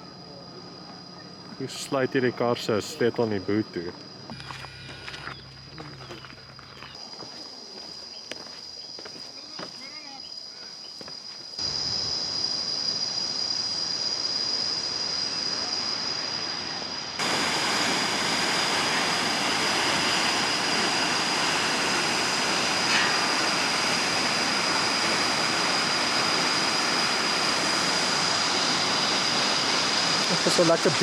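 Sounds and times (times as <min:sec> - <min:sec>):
thin high-pitched whine: 0:04.3 - 0:06.9, 0:17.2 - 0:31.0
waterfall rushing: 0:17.2 - 0:31.0.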